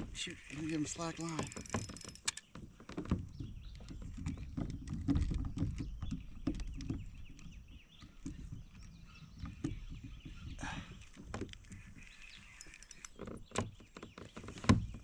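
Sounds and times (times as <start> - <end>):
clicks and knocks: 0.0 - 8.4.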